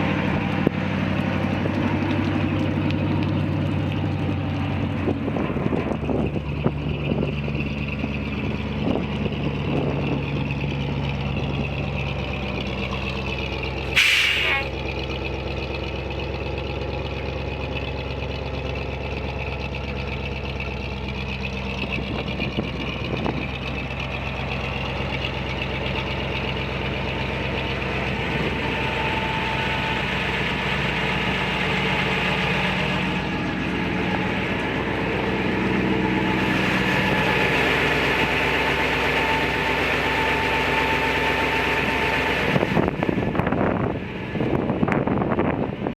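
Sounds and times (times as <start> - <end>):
truck engine idling: 0.0 - 45.9
air hiss: 13.9 - 14.7.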